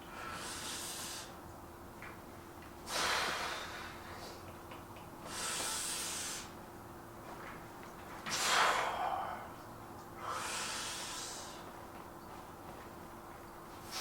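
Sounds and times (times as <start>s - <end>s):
man breathing forcefully: 0.0s - 1.4s, 2.9s - 4.4s, 5.2s - 6.5s, 8.3s - 9.5s, 10.2s - 11.7s.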